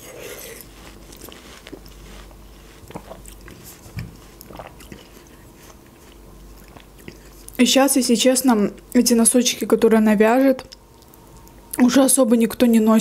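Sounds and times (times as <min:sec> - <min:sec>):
person chewing watermelon: 0:00.0 - 0:07.6.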